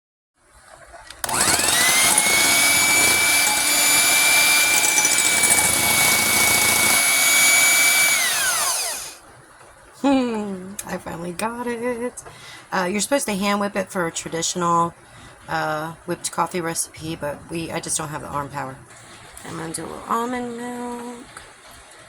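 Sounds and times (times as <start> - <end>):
blender motor whining: 1.2 - 9.2.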